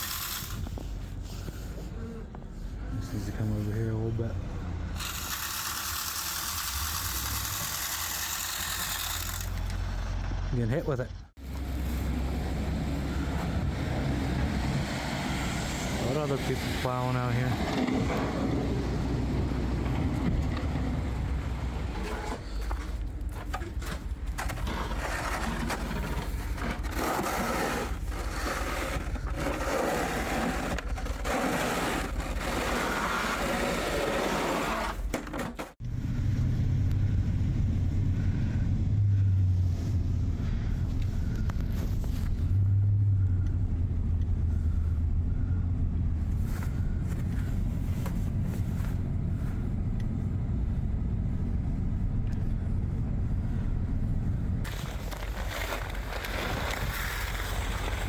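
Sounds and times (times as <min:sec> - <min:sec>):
plow blade scraping pavement: 0:00.0 - 0:58.0
truck engine rumbling: 0:00.0 - 0:58.0.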